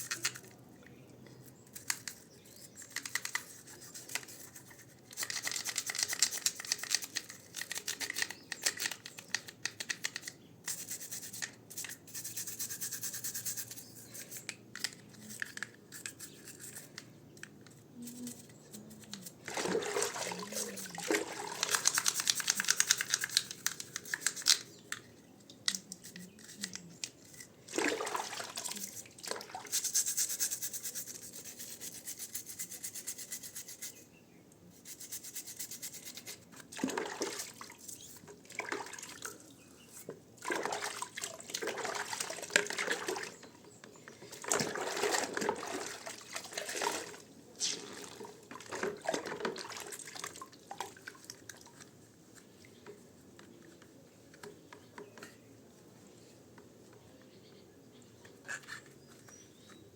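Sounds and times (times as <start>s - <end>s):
brush scrubbing: 1.7s - 8.3s, 10.7s - 14.5s, 18.0s - 24.6s, 25.9s - 27.4s, 28.2s - 34.0s, 34.7s - 36.6s
water sloshing and dripping: 19.4s - 22.7s, 27.7s - 29.7s, 36.7s - 37.8s, 38.4s - 39.6s, 40.4s - 43.5s, 44.3s - 52.0s.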